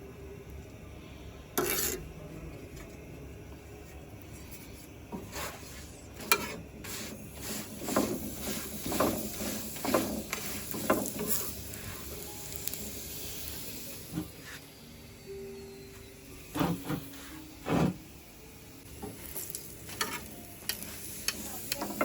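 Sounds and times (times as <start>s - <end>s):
scraping or stirring strokes: 5.2s - 12.0s.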